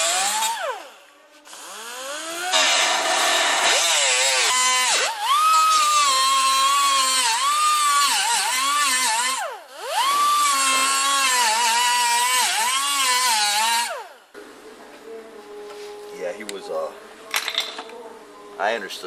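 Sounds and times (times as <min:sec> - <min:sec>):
power grinder whining on metal: 0:00.0 - 0:14.1.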